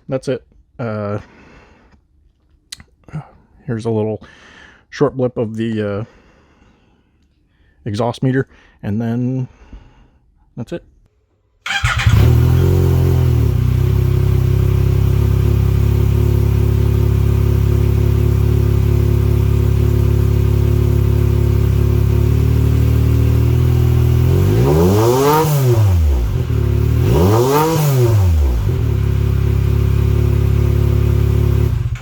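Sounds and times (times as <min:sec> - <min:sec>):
engine idling: 0:11.7 - 0:24.5, 0:28.2 - 0:32.0
engine revving: 0:11.7 - 0:32.0.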